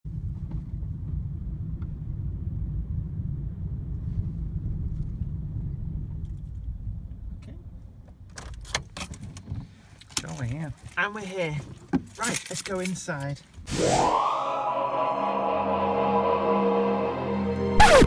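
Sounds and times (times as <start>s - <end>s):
car engine rumble: 0.0s - 12.5s.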